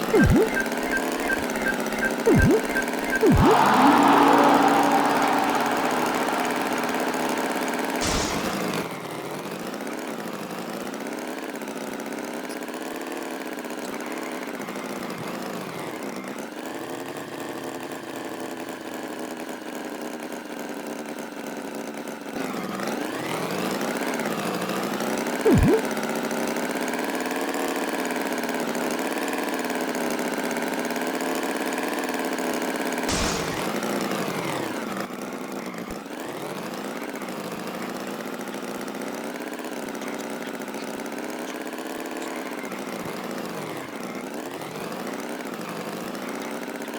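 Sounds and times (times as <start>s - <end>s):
loud swooping sound: 0.1s - 8.8s, 33.1s - 33.9s
sharp knock: 33.1s - 33.8s.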